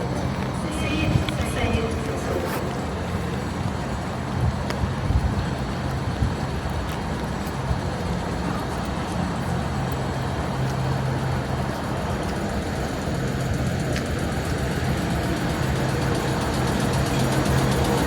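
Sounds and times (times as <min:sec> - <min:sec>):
train rumble from on board: 0:00.0 - 0:18.0.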